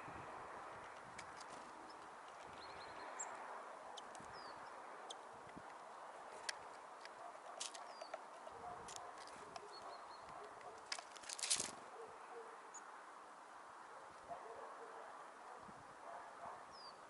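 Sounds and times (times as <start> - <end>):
birds tapping and clattering: 5.1 - 11.8.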